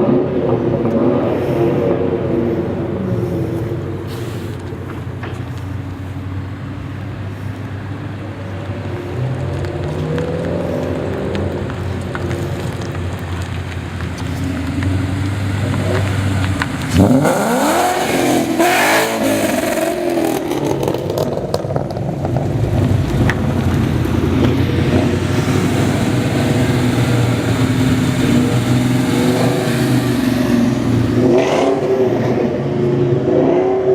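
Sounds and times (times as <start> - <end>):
car engines running: 0.0 - 33.9
engine revving hard: 16.9 - 21.2, 24.3 - 33.9.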